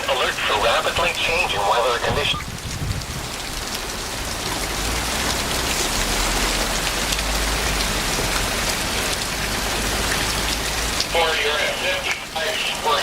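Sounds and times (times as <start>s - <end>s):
low thunder rumble: 0.0s - 5.2s
heavy rain pouring: 0.0s - 13.0s.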